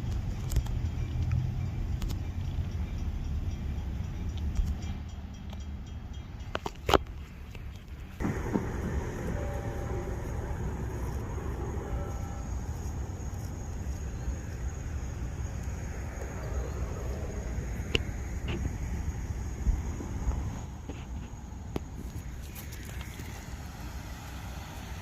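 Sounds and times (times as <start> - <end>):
low vehicle rumble: 7.4 - 25.0.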